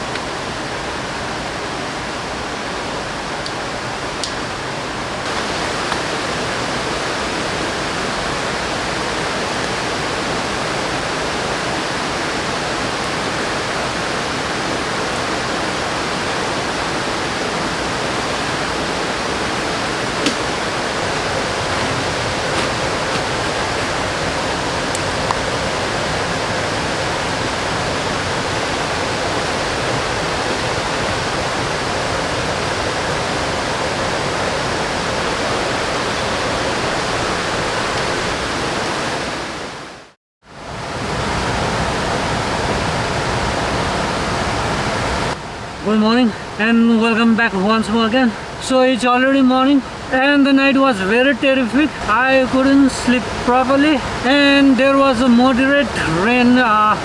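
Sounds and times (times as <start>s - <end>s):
water rushing: 0.0s - 57.0s.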